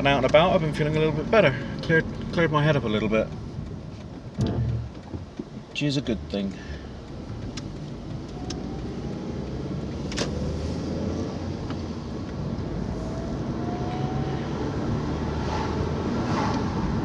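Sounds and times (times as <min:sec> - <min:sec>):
sharp tick: 0:00.0 - 0:10.3
car engine and road noise: 0:00.0 - 0:17.0.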